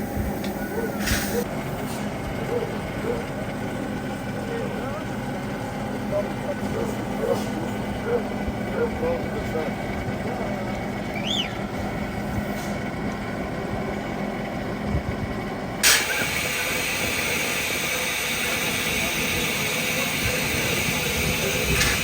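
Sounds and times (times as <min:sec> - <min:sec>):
loud steam hiss: 0:00.0 - 0:02.1, 0:15.8 - 0:22.0
steam train rumble: 0:00.0 - 0:22.0.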